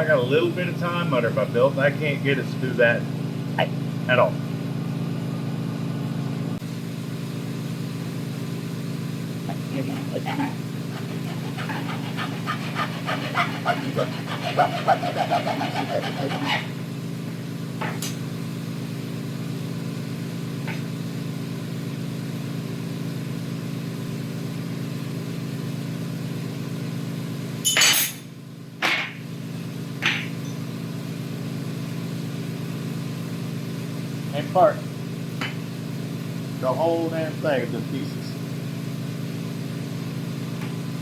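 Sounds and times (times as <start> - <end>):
motor humming: 9.4 - 17.4.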